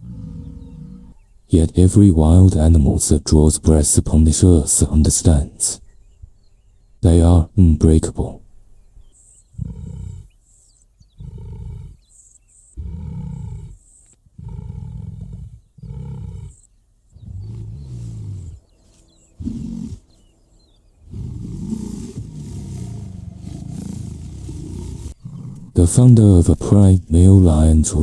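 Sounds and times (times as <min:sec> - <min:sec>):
lion roaring: 0:00.0 - 0:01.2, 0:09.6 - 0:10.4, 0:11.1 - 0:12.1, 0:12.8 - 0:18.8, 0:19.4 - 0:20.2, 0:21.0 - 0:27.8.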